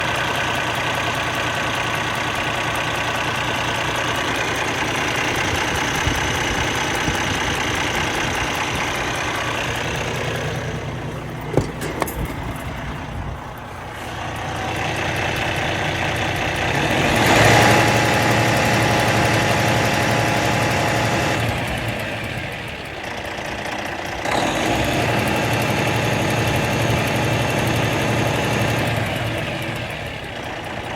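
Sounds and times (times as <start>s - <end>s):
car engine idling: 0.0s - 30.9s
valvetrain clicking: 4.3s - 16.7s
sharp engine knocks: 5.4s - 13.9s.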